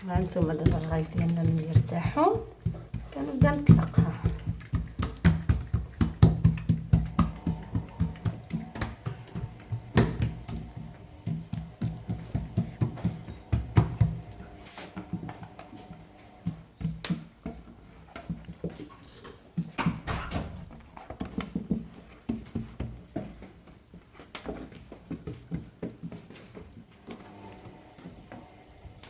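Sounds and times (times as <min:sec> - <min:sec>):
hands slapping dough: 0:00.0 - 0:18.9.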